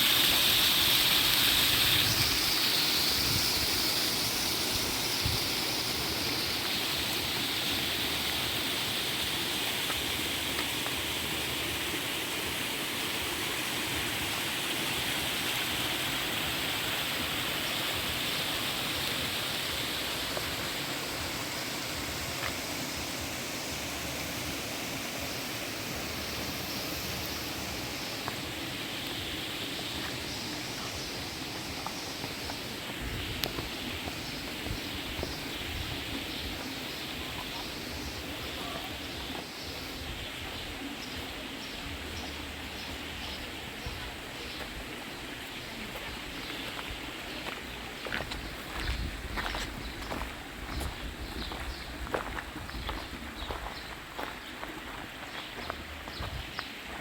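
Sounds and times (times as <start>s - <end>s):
water rushing in a stream: 0.0s - 57.0s.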